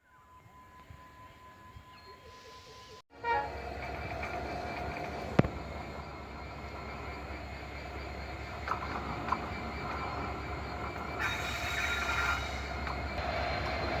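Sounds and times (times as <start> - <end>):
diesel train rumbling: 3.1 - 14.0.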